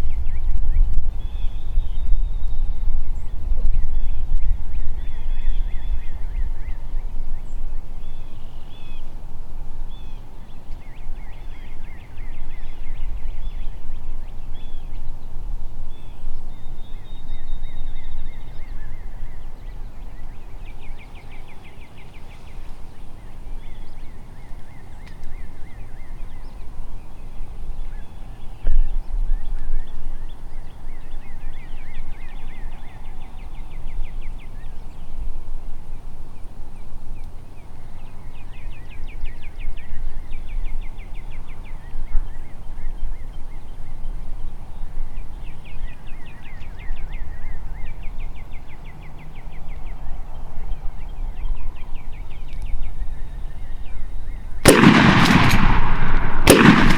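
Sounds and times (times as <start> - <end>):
wind rumble on microphone: 0.0 - 56.9
birds calling and trilling: 15.9 - 35.2, 37.2 - 56.9.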